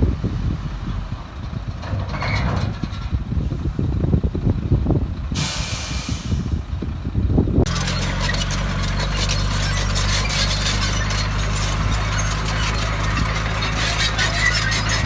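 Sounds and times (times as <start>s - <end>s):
diesel engine running: 0.0s - 15.0s
metallic squealing and clanking tracks: 1.8s - 3.3s, 7.7s - 15.0s.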